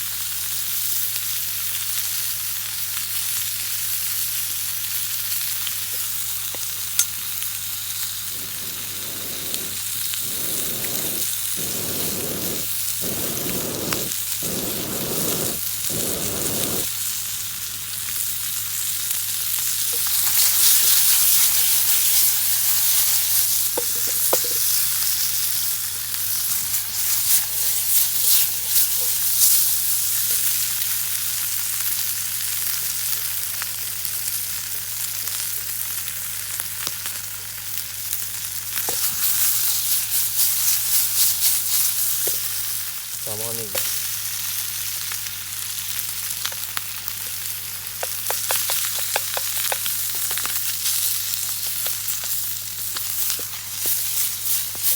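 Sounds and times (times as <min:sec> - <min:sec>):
bacon sizzling in hot oil: 0:00.0 - 0:54.9
oil popping: 0:08.2 - 0:16.9, 0:23.4 - 0:25.0, 0:47.2 - 0:54.9
stirring strokes in pan: 0:08.2 - 0:16.9, 0:48.0 - 0:54.9.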